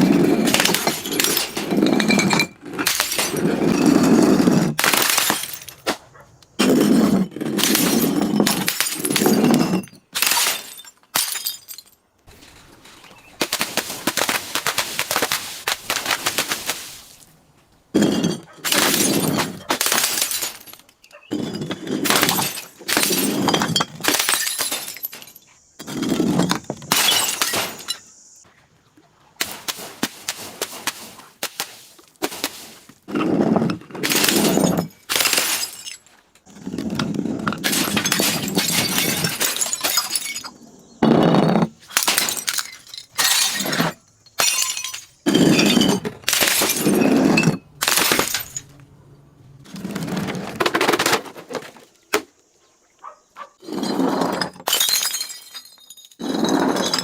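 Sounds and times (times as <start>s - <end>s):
glass bottles breaking and crushing: 0.1s - 6.0s, 6.6s - 12.0s, 18.0s - 28.4s, 34.0s - 36.1s, 37.6s - 48.7s, 53.7s - 57.0s.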